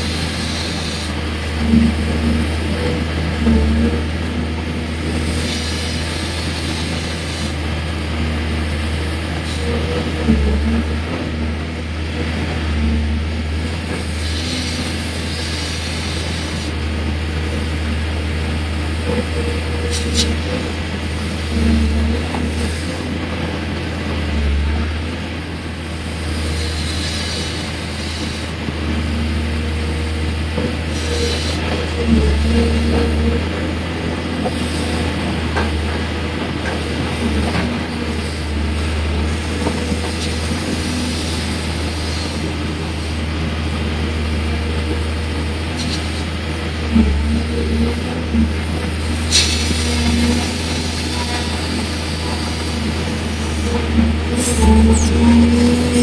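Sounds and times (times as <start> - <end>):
excavator diesel engine under load: 0.0 - 56.0.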